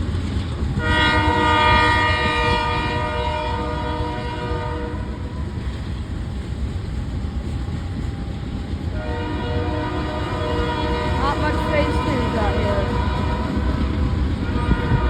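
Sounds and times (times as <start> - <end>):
train passing rumble: 0.0 - 15.0
locomotive air horn chord: 0.8 - 5.4, 8.9 - 15.0.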